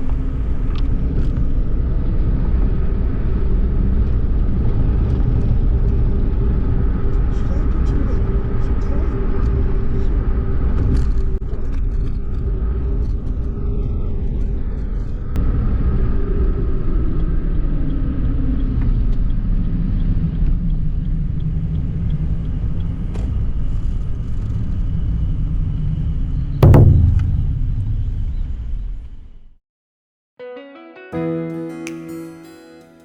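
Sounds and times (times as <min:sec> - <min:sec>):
loud thump: 0:26.6 - 0:28.7.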